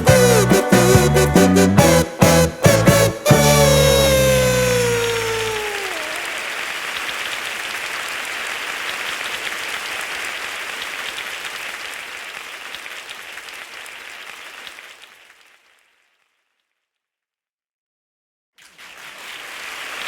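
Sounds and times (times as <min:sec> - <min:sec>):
heavy rain pattering: 0:05.0 - 0:15.7.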